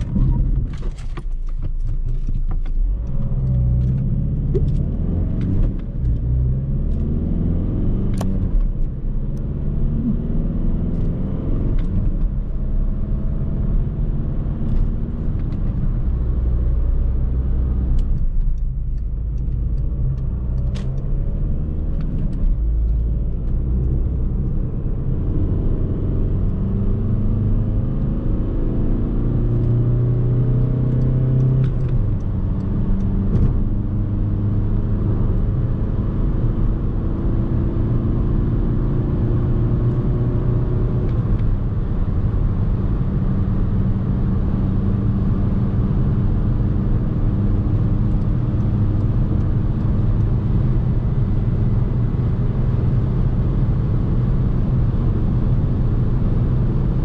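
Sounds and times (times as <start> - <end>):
tyre and road noise: 0.0 - 13.7
diesel car engine running: 0.0 - 57.0.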